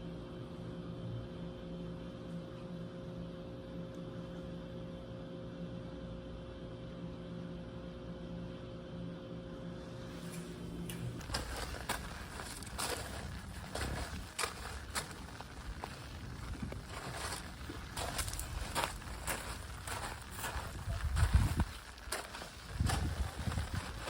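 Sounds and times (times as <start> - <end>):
machine hum: 9.8 - 24.0.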